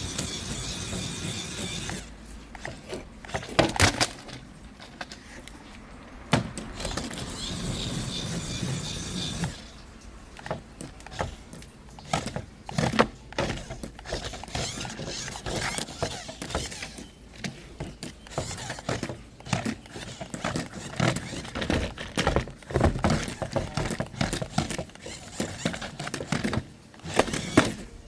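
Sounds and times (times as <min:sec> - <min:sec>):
hard objects clicking and knocking: 0:00.0 - 0:28.0.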